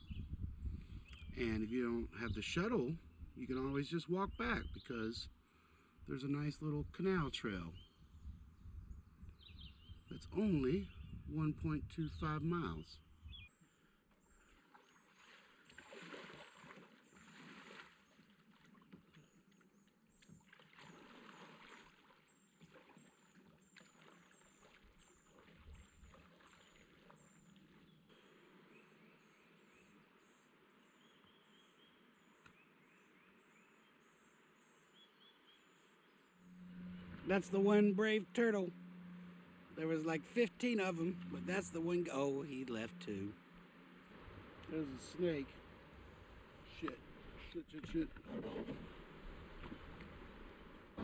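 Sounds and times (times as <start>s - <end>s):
kayak paddle strokes: 14.4s - 30.0s, 36.4s - 51.0s
water swishing: 14.4s - 30.6s, 36.2s - 51.0s.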